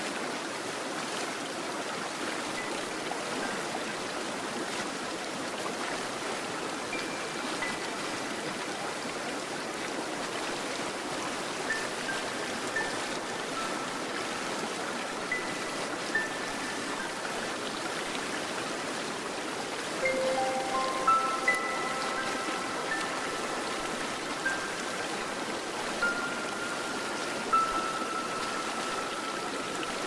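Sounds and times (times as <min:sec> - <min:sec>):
stream water rushing: 0:00.0 - 0:30.0
faint high chime-like notes: 0:06.9 - 0:08.6, 0:11.7 - 0:17.6, 0:20.0 - 0:30.0.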